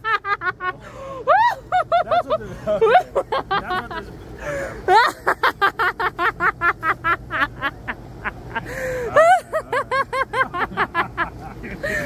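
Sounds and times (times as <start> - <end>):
gasping breath: 4.4 - 4.9, 8.6 - 9.1
high-pitched laughter: 4.9 - 12.0.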